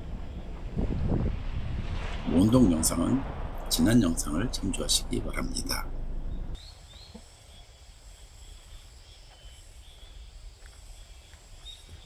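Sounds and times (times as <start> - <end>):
low steady rumble: 0.0 - 6.6.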